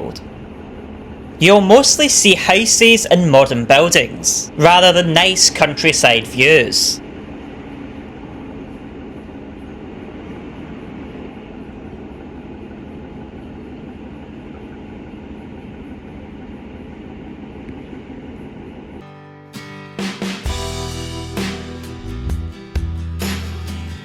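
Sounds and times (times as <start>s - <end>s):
rail and wheel rumble: 0.0s - 19.1s
train engine hum: 0.0s - 19.1s.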